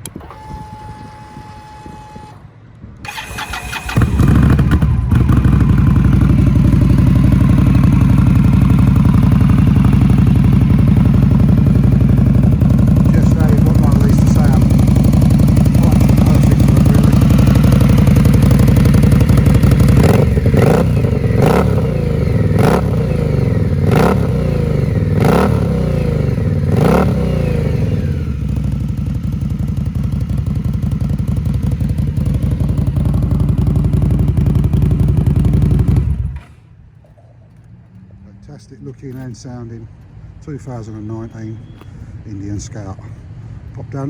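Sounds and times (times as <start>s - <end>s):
motorcycle engine revving and idling: 3.1s - 36.8s.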